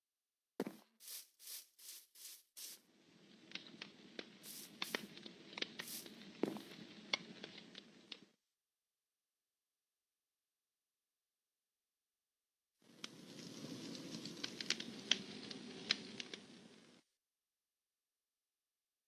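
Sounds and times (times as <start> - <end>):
short hissing rushes: 0.7 - 2.8, 4.4 - 5.1, 5.8 - 6.7
campfire crackling and popping: 13.0 - 16.6.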